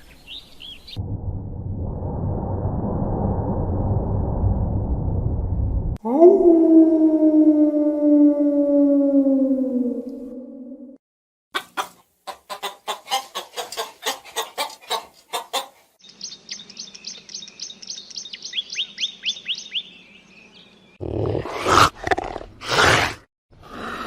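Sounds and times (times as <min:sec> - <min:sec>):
small bird high chirps: 0:16.0 - 0:21.0.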